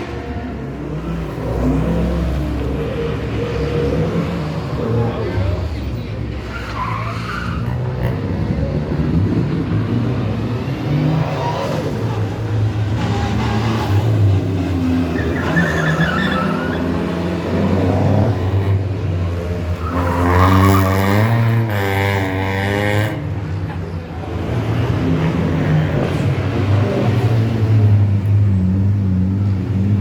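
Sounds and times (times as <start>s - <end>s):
rally car engine revving: 0.0s - 30.0s
tyres skidding: 0.0s - 30.0s
tyre squeal: 3.5s - 8.4s, 11.2s - 18.6s.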